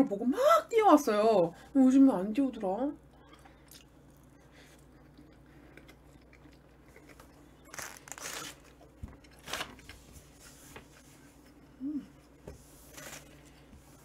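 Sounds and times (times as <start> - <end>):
chewing sandwich: 3.2 - 9.4.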